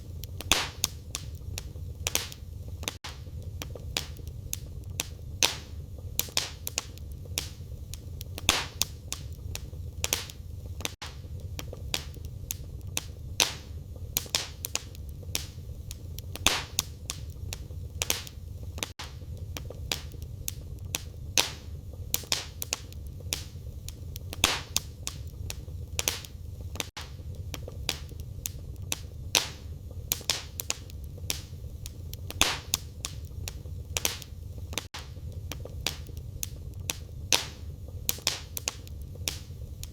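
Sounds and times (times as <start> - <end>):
fire crackling and popping: 0.0 - 39.9
low rumble of flames: 0.0 - 39.9.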